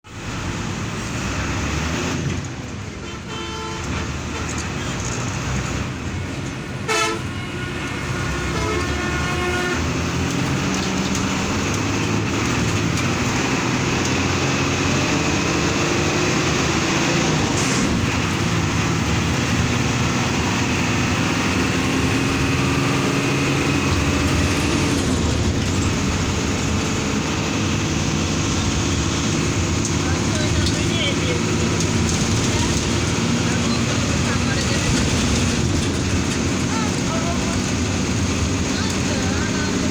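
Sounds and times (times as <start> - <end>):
road noise: 0.0 - 39.9
coach engine drone: 0.1 - 39.9
multi-tone horn: 3.0 - 4.5, 6.8 - 10.0.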